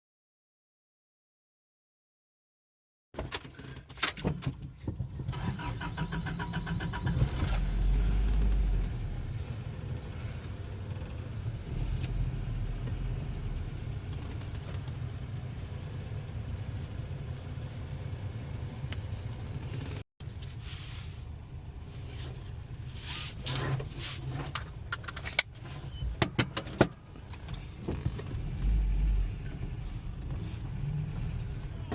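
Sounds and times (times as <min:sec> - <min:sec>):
engine revving then idling: 0:05.9 - 0:14.2, 0:28.2 - 0:31.9.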